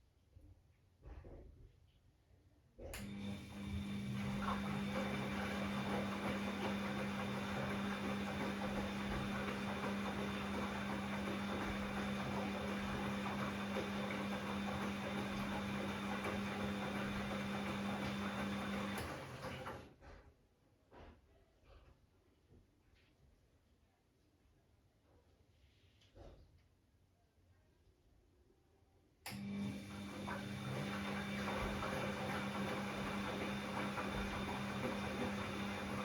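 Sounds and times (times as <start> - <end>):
washing machine hum: 2.8 - 20.3, 29.3 - 36.0.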